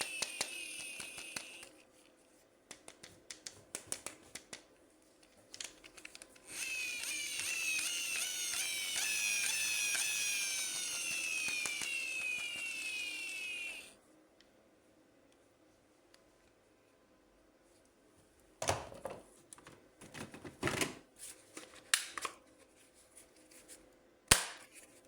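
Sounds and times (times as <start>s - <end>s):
plastic toy clicks: 0.0s - 1.7s, 5.6s - 13.9s.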